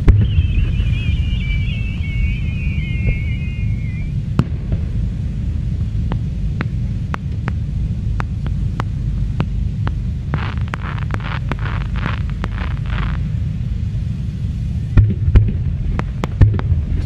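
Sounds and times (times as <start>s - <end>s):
whistling firework shell: 0.0s - 4.8s
crackle of bursting fireworks: 0.0s - 17.0s
fireworks low rumble: 0.0s - 17.0s
fireworks sharp pops: 4.0s - 13.3s, 15.0s - 17.0s.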